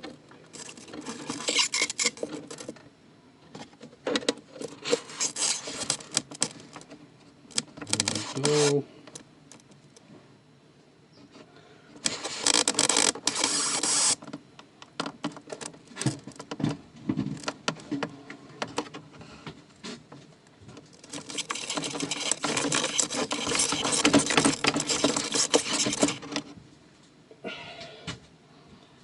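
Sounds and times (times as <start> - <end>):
cables scraping and rustling: 0.0 - 2.9, 4.5 - 7.0, 7.6 - 10.0, 11.2 - 14.4, 15.2 - 26.6.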